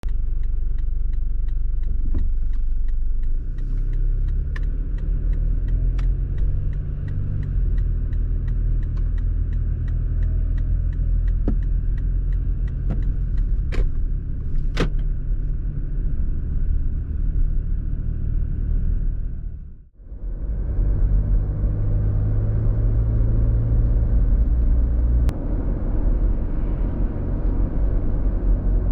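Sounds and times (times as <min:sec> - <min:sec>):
light ticking: 0:00.0 - 0:13.7
sharp clicks: 0:00.0 - 0:13.9
engine and road rumble in cabin: 0:00.0 - 0:28.9.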